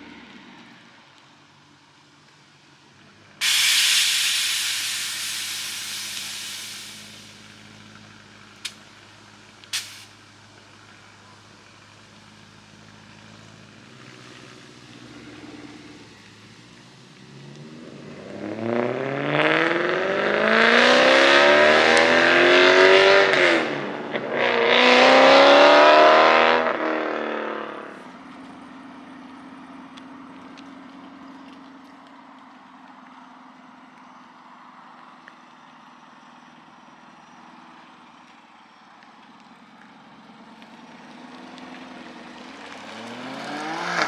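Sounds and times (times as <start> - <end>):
car engine accelerating: 3.0 - 44.0.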